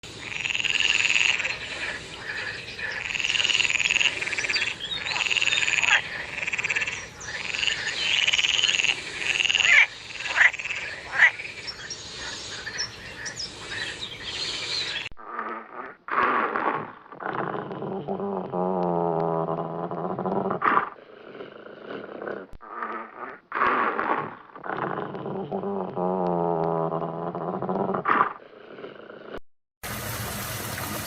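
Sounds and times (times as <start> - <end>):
frog trilling calls: 0.2 - 16.3.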